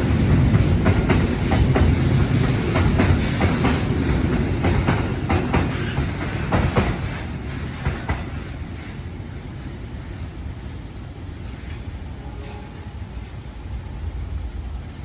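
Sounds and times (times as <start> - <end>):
freight train rolling past: 0.0 - 15.0.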